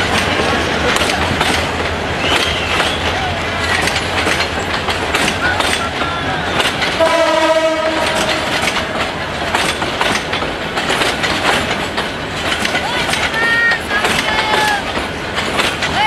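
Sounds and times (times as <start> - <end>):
train wheels clacking on rails: 0.0 - 16.0
train horn: 6.9 - 9.0.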